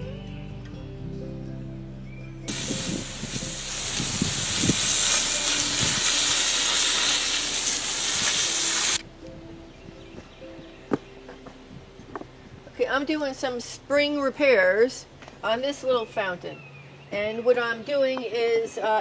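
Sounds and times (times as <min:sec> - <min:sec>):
soft background music: 0:00.0 - 0:15.2
loud steady hiss: 0:02.5 - 0:09.0.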